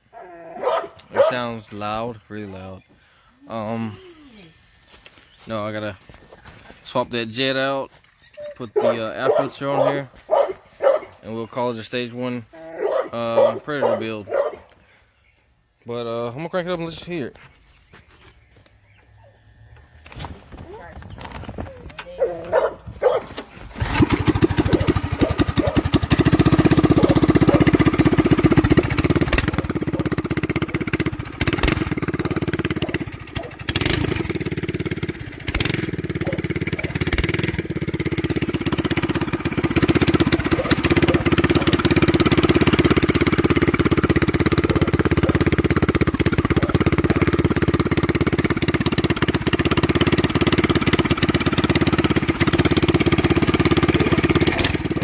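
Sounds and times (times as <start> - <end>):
go-kart engine running loud: 23.8 - 55.0.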